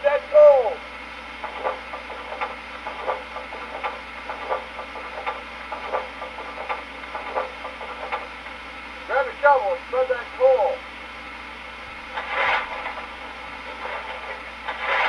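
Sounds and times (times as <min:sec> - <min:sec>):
model steam locomotive chuffing: 0:00.0 - 0:15.0
steady hum: 0:00.0 - 0:15.0.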